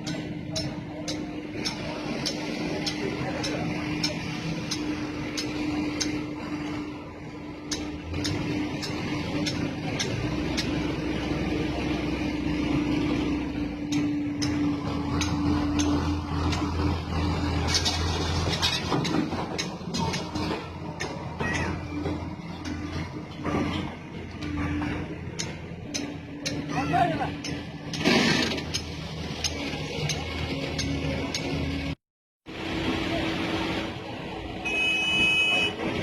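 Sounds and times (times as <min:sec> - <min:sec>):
sharp ticking clicks: 0:00.0 - 0:06.2, 0:07.6 - 0:10.9, 0:13.8 - 0:16.8, 0:25.2 - 0:26.7
diesel engine running under load: 0:00.0 - 0:36.0.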